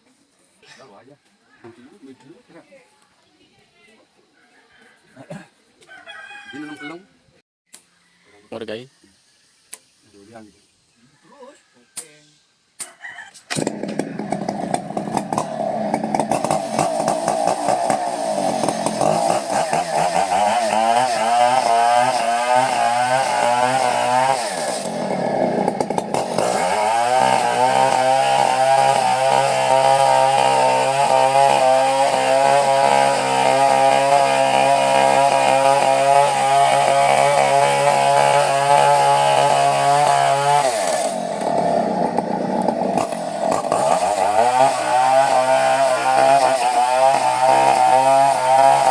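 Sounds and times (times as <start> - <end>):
chainsaw sawing wood: 13.3 - 48.9.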